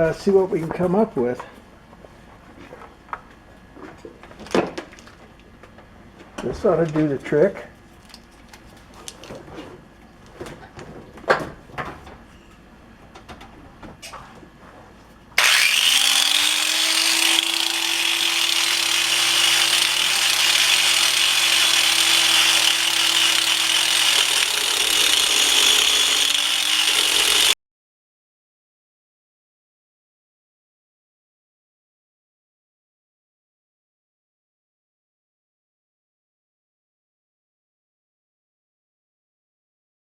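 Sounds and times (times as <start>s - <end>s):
power grinder grinding steel: 15.4s - 27.6s.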